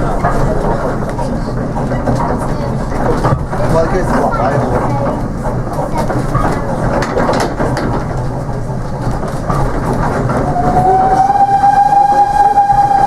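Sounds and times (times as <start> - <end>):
wheels clattering over rail joints: 0.0 - 12.8
train rumble: 0.0 - 13.0
steam whistle: 10.4 - 13.0.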